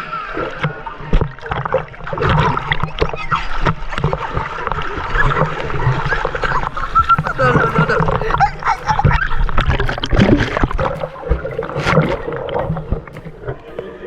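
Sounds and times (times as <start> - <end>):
water splashing and sloshing: 0.0 - 14.0
irregular knocks: 6.6 - 14.0.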